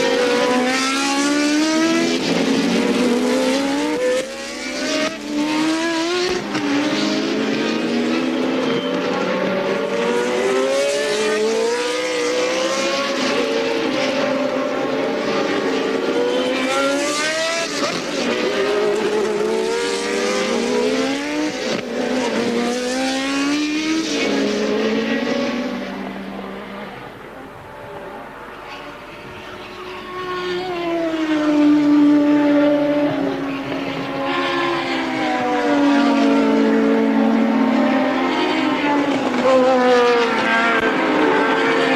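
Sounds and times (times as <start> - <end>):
racing car engines: 0.0 - 41.9.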